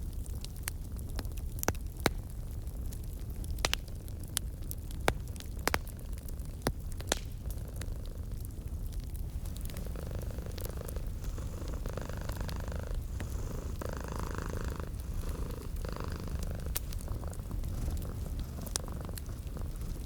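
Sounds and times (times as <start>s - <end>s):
wood fire crackling: 0.0s - 20.0s
cat purring: 7.4s - 20.0s.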